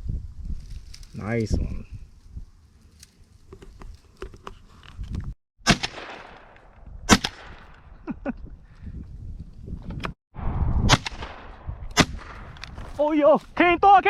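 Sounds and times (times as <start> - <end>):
shotgun shots with echo: 5.6 - 6.5, 7.1 - 7.7, 10.8 - 12.5.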